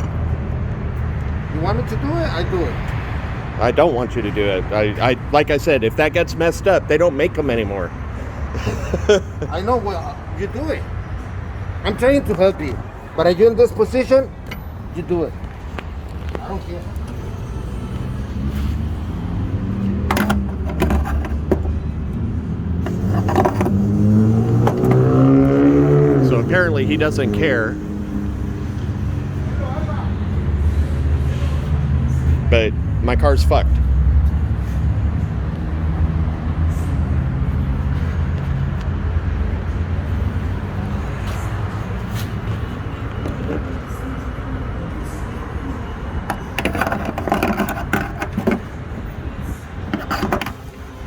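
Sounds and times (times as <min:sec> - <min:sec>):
low rumble of traffic: 0:00.0 - 0:51.0
metallic clinks and scrapes: 0:20.1 - 0:21.7, 0:22.8 - 0:24.0, 0:46.3 - 0:48.8, 0:49.9 - 0:50.8.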